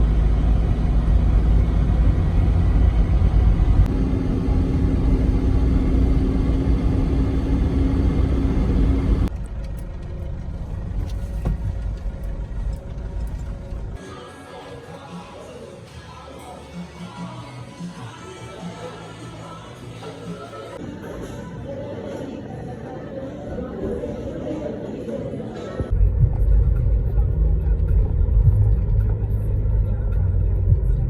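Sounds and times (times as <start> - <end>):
vehicle engine rumbling: 0.0 - 14.3, 25.8 - 31.0.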